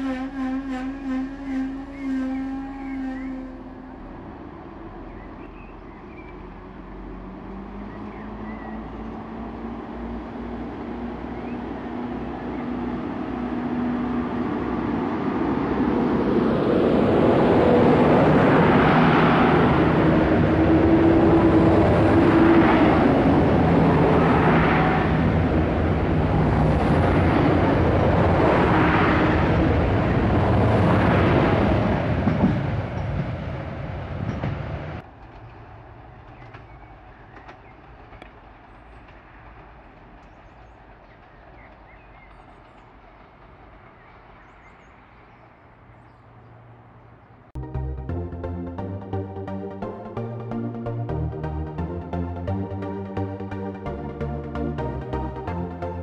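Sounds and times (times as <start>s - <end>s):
train passing on track: 0.0s - 56.0s.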